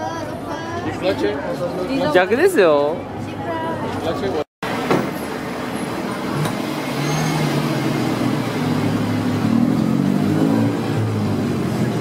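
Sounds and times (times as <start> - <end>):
traffic hum: 0.0 - 12.0.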